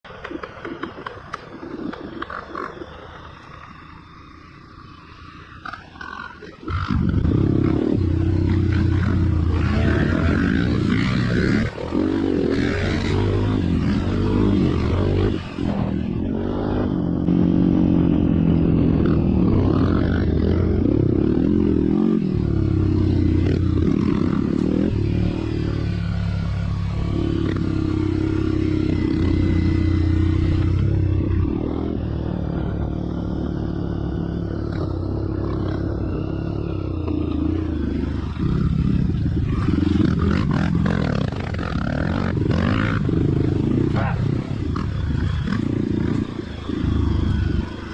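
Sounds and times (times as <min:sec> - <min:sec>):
motorcycle engine revving: 0:00.3 - 0:47.9.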